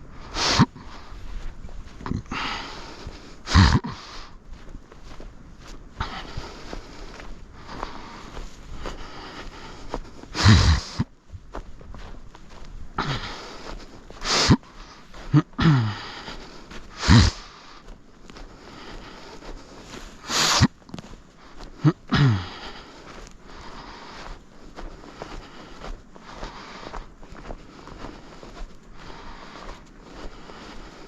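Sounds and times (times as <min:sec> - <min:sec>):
person sniffing and exhaling: 0:00.1 - 0:01.3, 0:02.0 - 0:04.4, 0:06.0 - 0:11.1, 0:13.0 - 0:24.4
person grunting: 0:02.0 - 0:02.7, 0:03.5 - 0:04.1, 0:10.4 - 0:11.0, 0:13.0 - 0:13.4, 0:15.3 - 0:16.2, 0:17.0 - 0:17.4, 0:21.8 - 0:22.8.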